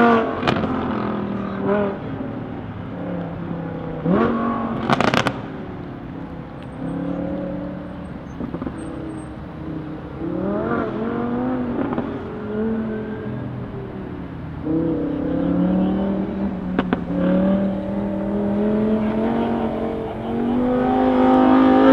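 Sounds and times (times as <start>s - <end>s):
car engine revving: 0.0s - 21.9s
exhaust pops and crackles: 0.2s - 12.8s, 15.6s - 21.9s.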